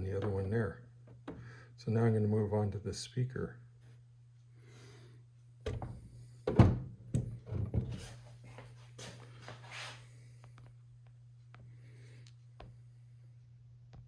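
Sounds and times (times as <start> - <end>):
steady low hum: 0.0 - 14.0
soft rubbing: 7.9 - 10.1.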